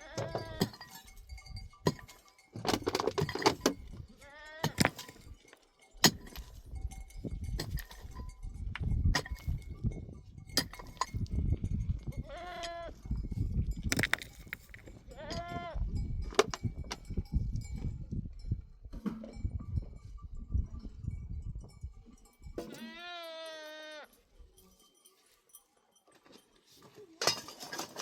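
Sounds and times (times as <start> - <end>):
goat bleating: 0.0 - 0.7, 4.1 - 4.8, 12.2 - 13.0, 15.1 - 15.8, 22.7 - 24.2
sharp knocks and clatter: 1.8 - 3.9.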